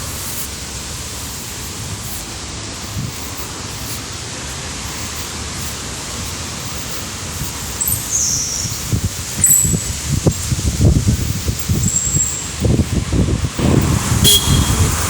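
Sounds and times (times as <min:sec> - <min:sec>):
wind buffeting microphone: 0:00.0 - 0:15.0
strong wind blowing: 0:05.9 - 0:15.0.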